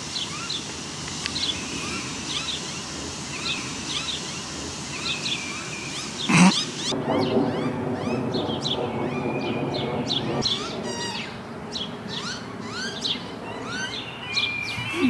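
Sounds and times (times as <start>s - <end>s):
birds chirping and whistling: 0.0s - 15.0s.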